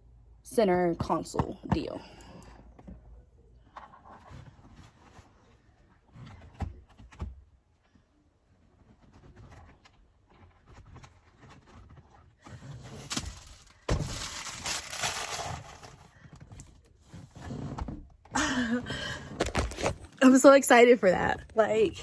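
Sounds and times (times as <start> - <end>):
rustling: 8.6 - 17.3.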